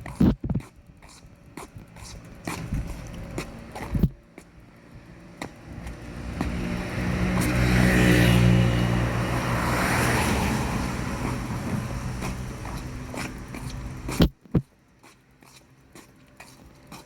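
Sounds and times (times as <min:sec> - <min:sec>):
car driving past: 0:05.5 - 0:14.2.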